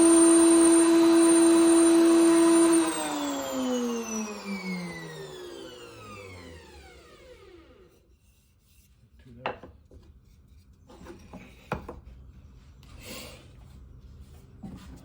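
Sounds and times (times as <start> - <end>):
router motor winding down: 0.0 - 7.9.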